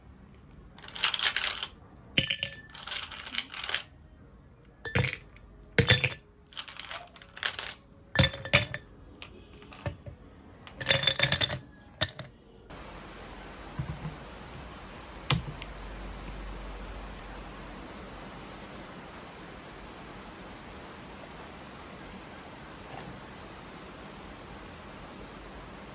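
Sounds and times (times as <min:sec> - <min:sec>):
dishes and utensils clinking: 0:02.2 - 0:03.8, 0:04.8 - 0:08.9, 0:09.6 - 0:12.4
steady hiss: 0:12.7 - 0:25.9.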